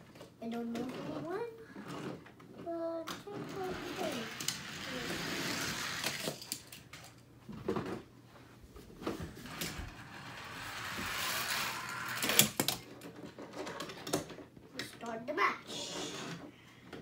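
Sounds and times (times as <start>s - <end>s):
toy car rolling rush: 3.1s - 7.0s, 9.4s - 14.3s
plastic toy clicks and knocks: 5.4s - 7.2s, 10.8s - 15.0s.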